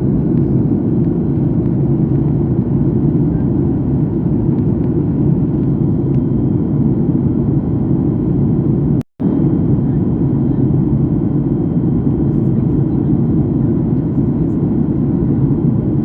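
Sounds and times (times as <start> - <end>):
airliner cabin roar: 0.0 - 16.0.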